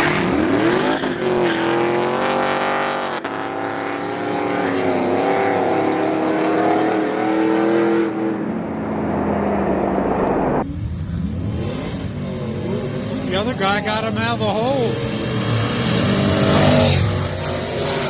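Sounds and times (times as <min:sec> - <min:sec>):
racing car engines at full throttle: 0:00.0 - 0:10.7, 0:11.3 - 0:18.0.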